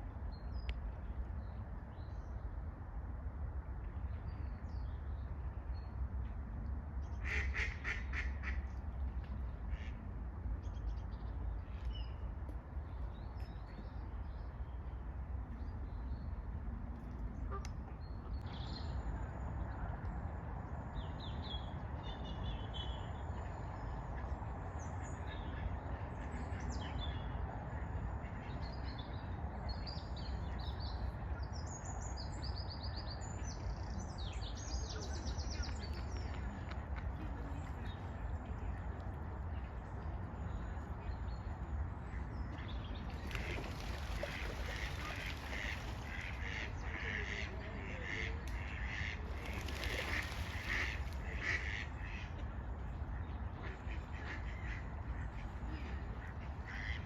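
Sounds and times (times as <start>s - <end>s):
ducks quacking: 7.2s - 8.6s, 43.3s - 52.4s, 53.5s - 57.0s.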